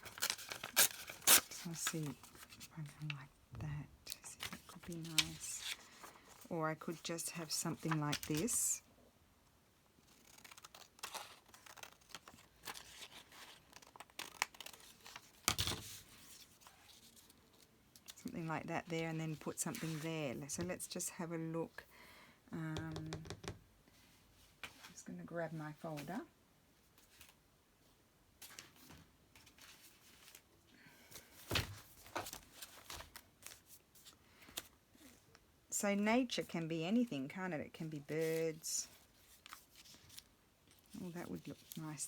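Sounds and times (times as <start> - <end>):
paper rustling: 4.4 - 6.5.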